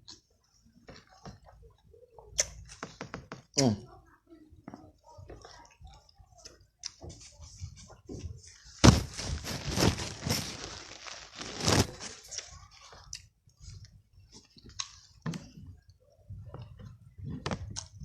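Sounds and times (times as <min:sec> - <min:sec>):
chewing and mouth sounds: 0:04.6 - 0:07.3, 0:12.1 - 0:18.0
sandwich crunching: 0:08.8 - 0:12.5.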